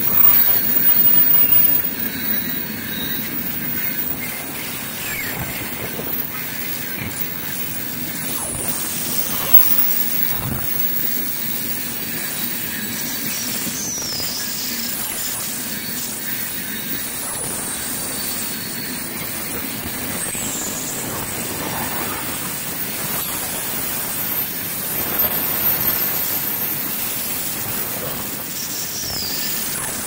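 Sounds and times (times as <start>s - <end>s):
high wheel squeals: 0.0s - 15.0s, 22.8s - 29.8s
freight train wheels rumbling: 0.0s - 28.6s.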